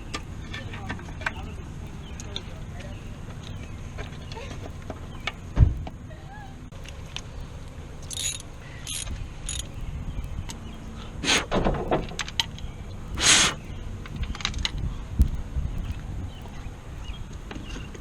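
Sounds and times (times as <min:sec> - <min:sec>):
metal tools clinking: 0:08.0 - 0:09.7.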